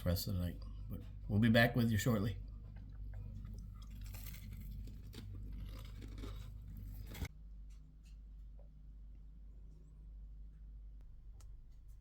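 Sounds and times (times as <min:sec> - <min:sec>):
steady low hum: 0:00.0 - 0:12.0
crackly crunching: 0:02.7 - 0:07.3.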